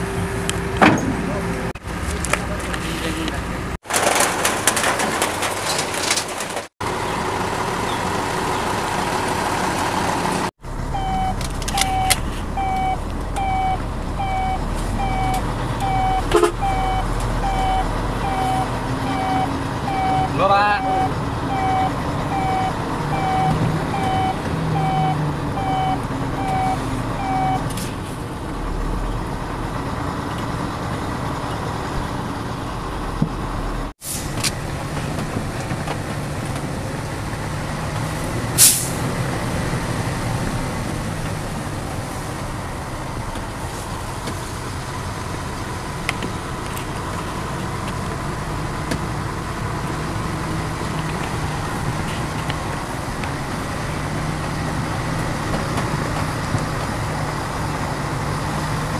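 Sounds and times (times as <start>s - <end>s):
truck engine running: 6.3s - 58.9s
repeating beep: 10.9s - 27.6s
air brake hiss: 34.0s - 34.4s, 38.6s - 39.0s.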